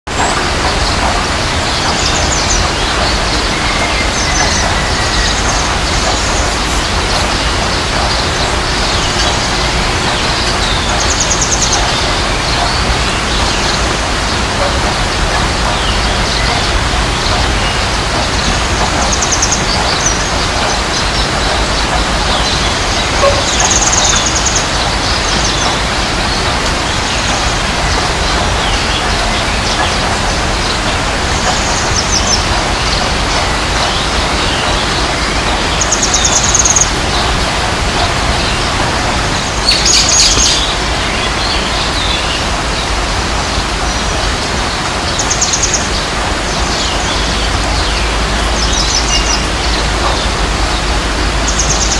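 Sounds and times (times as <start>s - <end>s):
steady rushing noise: 0.1s - 51.9s
small birds chirping: 0.2s - 44.0s.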